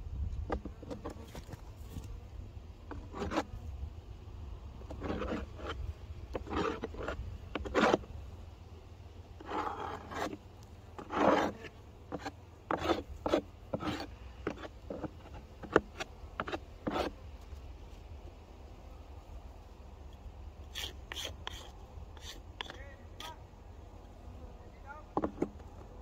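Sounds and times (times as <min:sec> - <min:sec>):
scraping and rubbing strokes: 0:02.9 - 0:03.6, 0:04.8 - 0:08.1, 0:09.4 - 0:18.1, 0:20.6 - 0:23.4.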